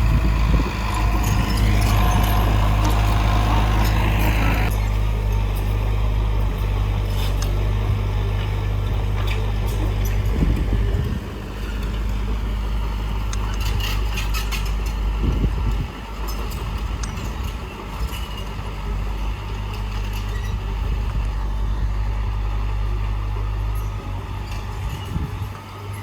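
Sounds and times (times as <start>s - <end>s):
diesel engine running: 0.0s - 26.0s
clicks and clanks: 13.3s - 15.1s, 15.7s - 18.8s.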